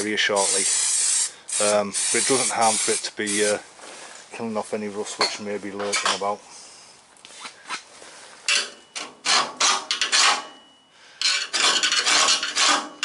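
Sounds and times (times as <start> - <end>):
screwdriver scraping rust from metal: 8.5 - 10.6, 11.2 - 13.0.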